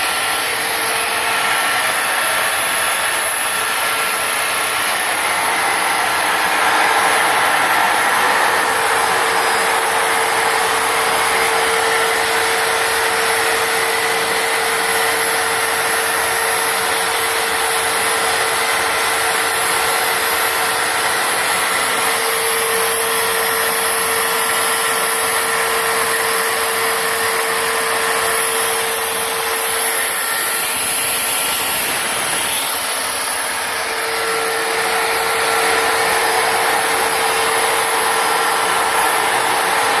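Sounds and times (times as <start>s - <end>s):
jet engine rushing: 0.0s - 13.6s, 25.8s - 39.8s
high-pitched turbine whine: 0.0s - 40.0s.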